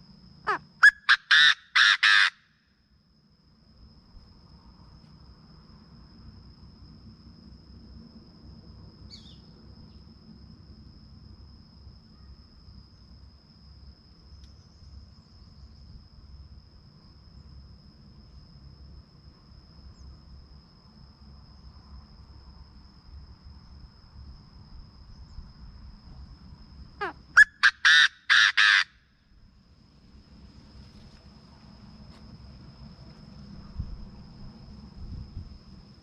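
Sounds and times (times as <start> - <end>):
francolin calling harsh notes: 0.5 - 2.4, 27.0 - 28.9.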